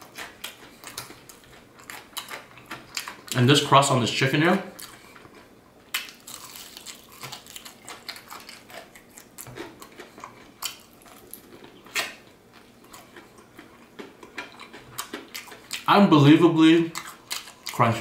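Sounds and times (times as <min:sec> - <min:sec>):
fried chicken crust crunching: 0:04.7 - 0:15.9.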